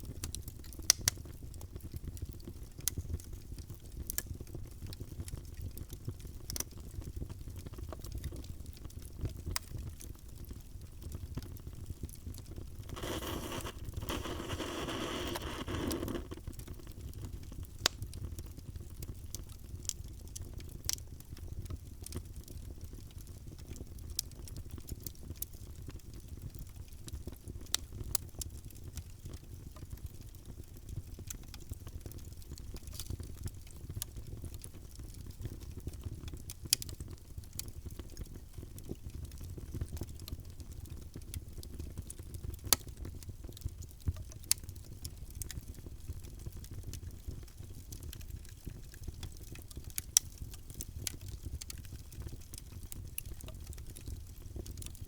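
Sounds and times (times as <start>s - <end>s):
wood fire crackling and popping: 0.1s - 55.0s
low rumble of flames: 12.8s - 17.6s.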